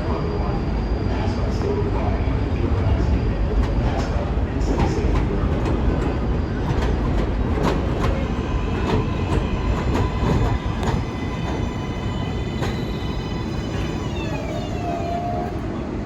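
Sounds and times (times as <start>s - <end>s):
train rumbling on elevated track: 0.0s - 16.0s
wheels clicking over rail joints: 6.6s - 14.5s.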